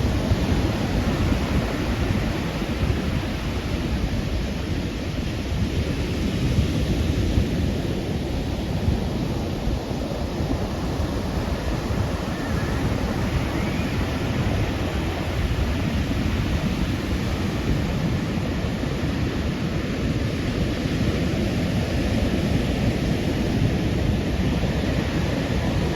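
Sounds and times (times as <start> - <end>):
ocean surf washing ashore: 0.0 - 25.9
wind buffeting microphone: 0.0 - 25.9.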